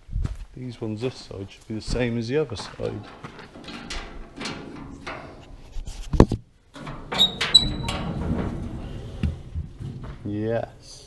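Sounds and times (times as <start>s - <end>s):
rustling handling noise: 0.8s - 11.0s
metal knocks and clinks: 2.6s - 10.2s.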